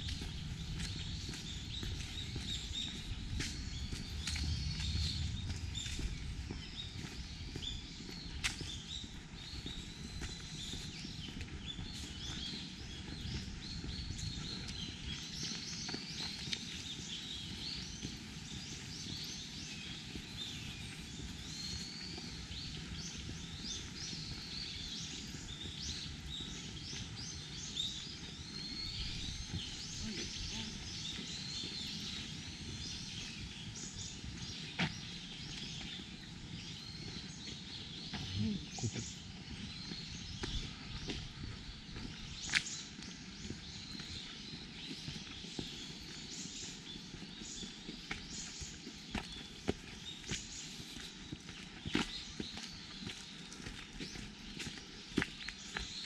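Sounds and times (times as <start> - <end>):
low rumble: 0.0 - 8.3
songbirds chirping: 0.0 - 56.0.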